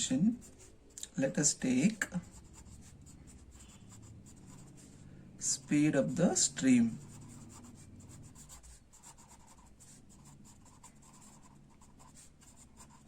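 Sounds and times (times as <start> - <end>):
pen scratching while writing: 2.2 - 4.9, 7.0 - 13.0.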